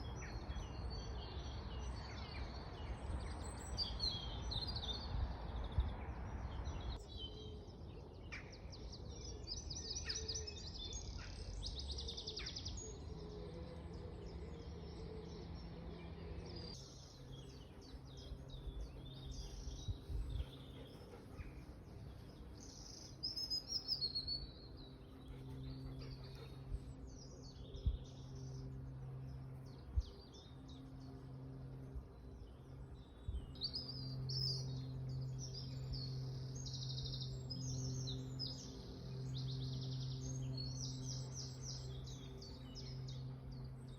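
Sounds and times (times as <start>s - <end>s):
songbirds singing: 0.0s - 43.9s
steady low hum: 12.8s - 43.9s.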